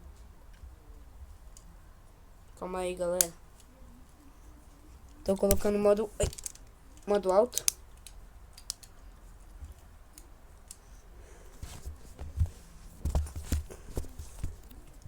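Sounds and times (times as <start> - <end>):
faint plastic rustling: 3.4 - 15.0
plastic parts clicking: 5.2 - 9.0.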